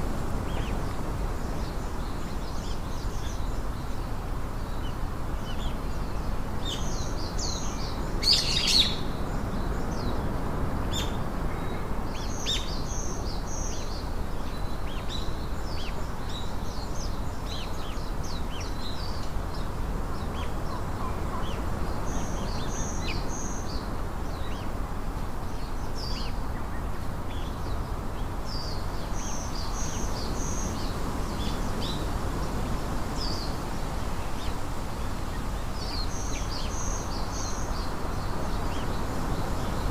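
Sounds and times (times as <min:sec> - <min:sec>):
songbirds chirping: 0:00.0 - 0:39.9
steady low background noise: 0:00.0 - 0:39.9.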